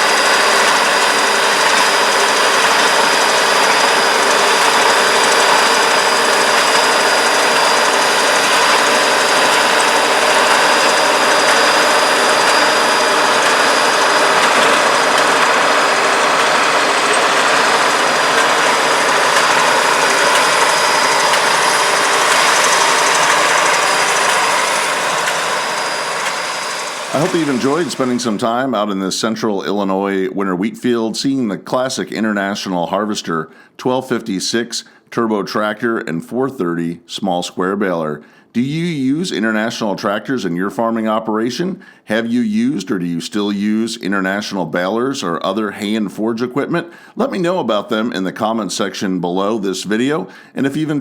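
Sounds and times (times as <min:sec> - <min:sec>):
tractor diesel engine running: 0:00.0 - 0:28.5
baler machinery running: 0:00.0 - 0:28.7
steady high whine: 0:00.0 - 0:28.7.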